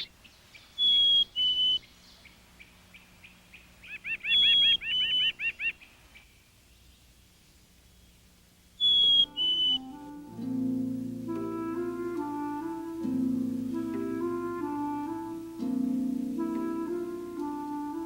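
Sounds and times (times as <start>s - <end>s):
bird chirping run: 0.0s - 7.1s, 8.8s - 9.8s
faint bird chips: 0.0s - 9.8s
songbird whistling two-note phrases: 8.8s - 10.2s.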